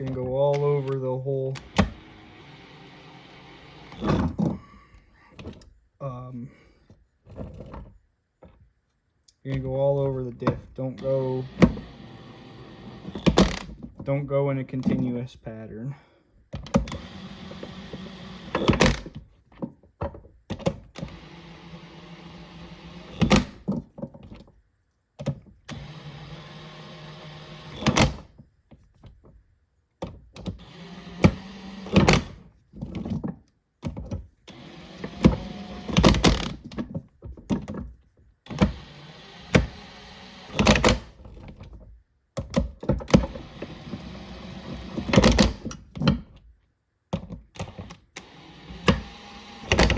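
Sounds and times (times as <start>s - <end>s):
impact wrench whirring: 0.0s - 4.4s, 10.9s - 13.8s, 16.7s - 19.2s, 20.7s - 23.7s, 25.6s - 28.3s, 30.5s - 32.5s, 34.5s - 36.7s, 38.5s - 41.5s, 43.1s - 45.9s, 47.6s - 49.9s.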